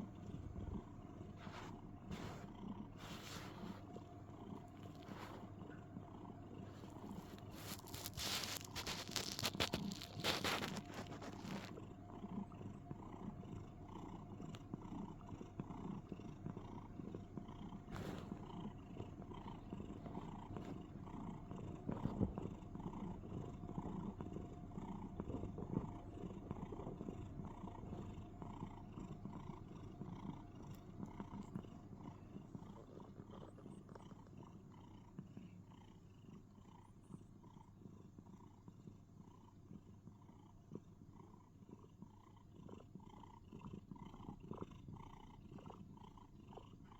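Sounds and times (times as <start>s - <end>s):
cat purring: 0.0s - 46.9s.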